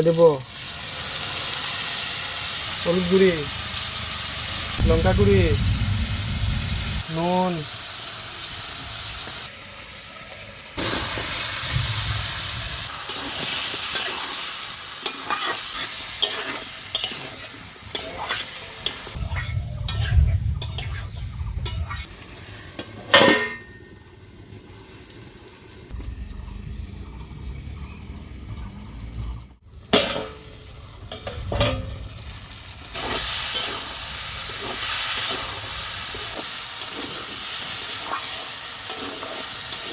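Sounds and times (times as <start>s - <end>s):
masala sizzling in hot oil: 0.0s - 27.8s, 29.6s - 39.9s
metal spatula scraping pan: 15.0s - 22.1s, 36.1s - 39.9s.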